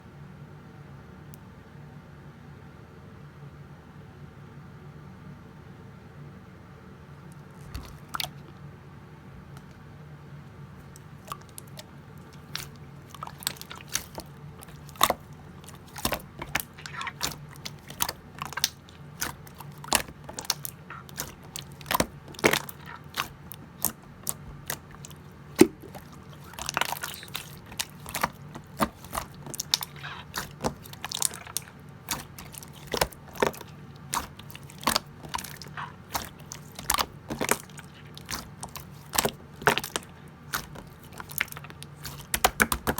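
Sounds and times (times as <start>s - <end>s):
steady low hum: 0.0s - 42.9s
slime popping and clicking: 12.4s - 42.9s.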